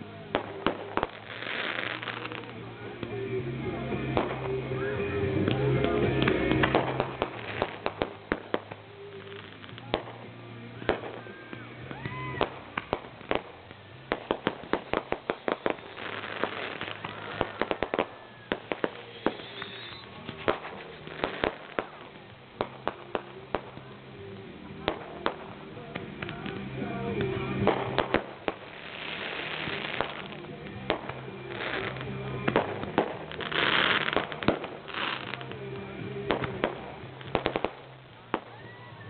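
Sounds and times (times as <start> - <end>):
firecrackers popping and banging: 0.0 - 3.2, 4.0 - 39.0
firework whistles: 10.8 - 23.2, 27.6 - 35.4, 36.6 - 39.0.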